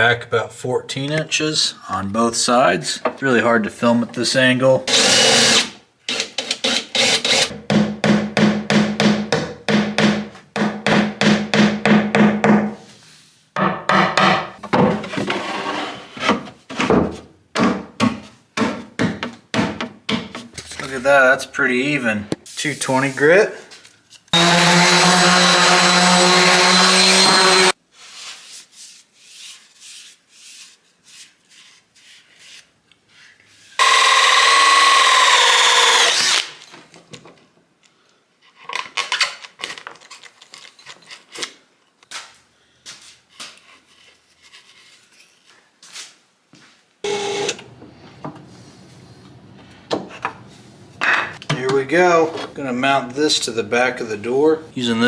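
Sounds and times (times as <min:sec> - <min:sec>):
electric sander on wood: 0:24.4 - 0:27.8, 0:47.1 - 0:50.5
wood knocking and clicking: 0:49.6 - 0:51.8.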